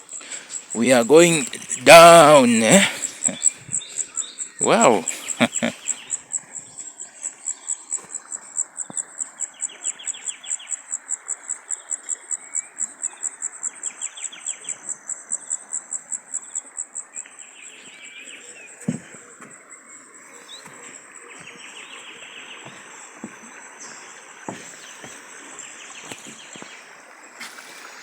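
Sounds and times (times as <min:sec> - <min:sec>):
cricket chirping: 0:00.0 - 0:28.0
faint outdoor hiss: 0:00.0 - 0:28.0.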